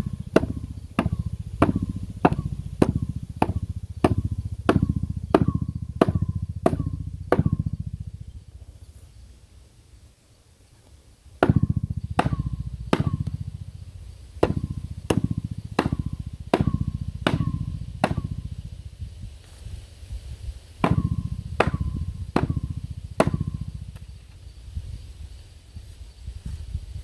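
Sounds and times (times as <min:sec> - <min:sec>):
pipe fitting being pounded: 0:00.0 - 0:08.0, 0:11.4 - 0:13.8, 0:14.4 - 0:18.5, 0:20.8 - 0:24.0.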